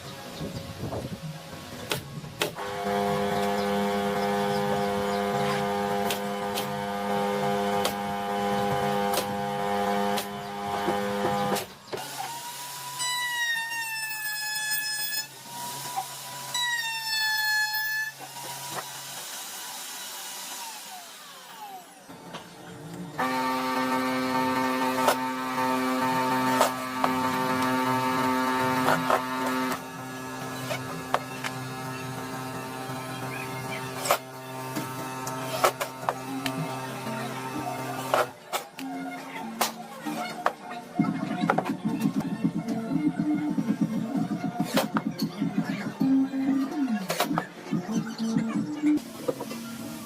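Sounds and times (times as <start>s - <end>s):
power tool motor humming: 2.4s - 22.3s, 22.9s - 39.0s.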